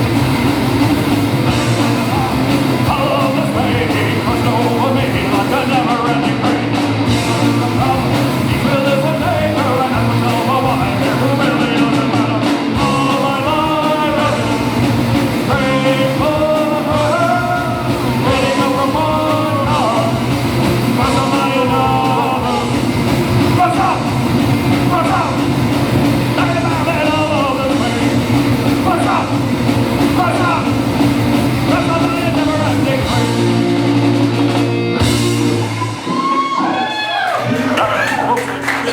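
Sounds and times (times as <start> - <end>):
rock band playing: 0.0 - 38.9
person singing: 1.6 - 25.5.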